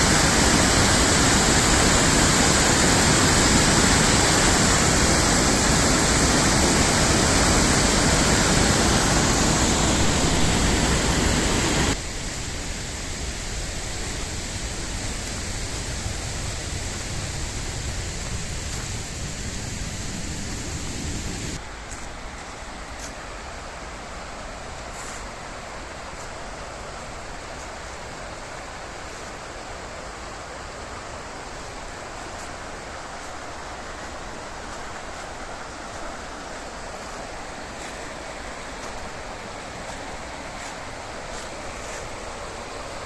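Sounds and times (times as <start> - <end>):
river water rushing: 0.0 - 12.0, 22.4 - 43.0.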